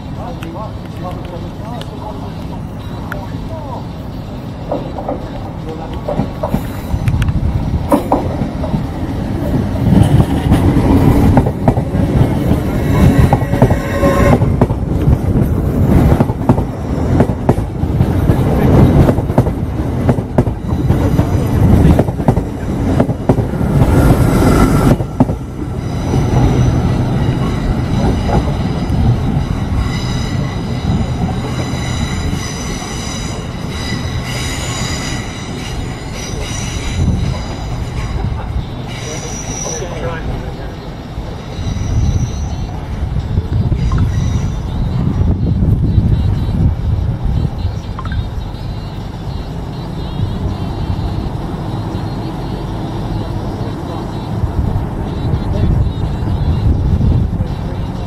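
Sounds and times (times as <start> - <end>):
train wheels rumbling on rails: 0.0 - 58.0
high-pitched wheel squeal: 12.7 - 14.5, 25.7 - 42.9, 43.6 - 58.0.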